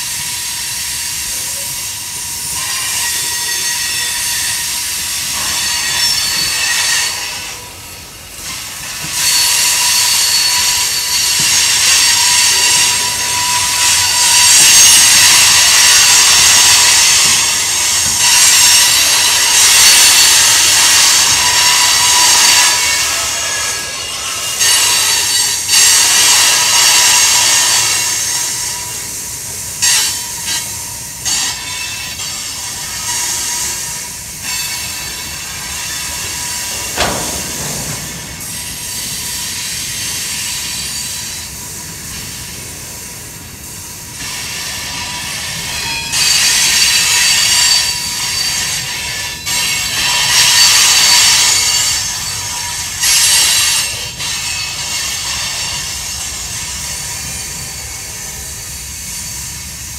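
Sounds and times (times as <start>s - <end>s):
steel wheels rumbling on rail: 0.0s - 59.9s
wheel squeal: 0.1s - 7.8s, 8.4s - 42.6s, 44.2s - 59.6s
sharp metal clank: 36.8s - 38.7s.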